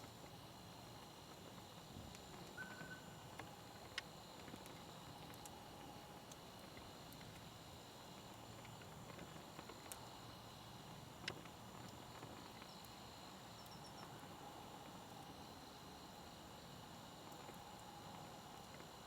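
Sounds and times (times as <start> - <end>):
quiet fire hiss: 0.0 - 19.0
campfire crackling and popping: 3.3 - 14.1, 17.1 - 19.0.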